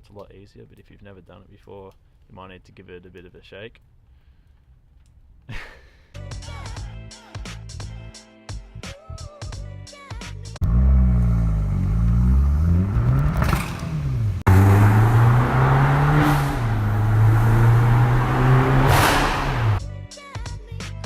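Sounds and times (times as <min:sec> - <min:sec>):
car engine revving: 0:10.6 - 0:19.8.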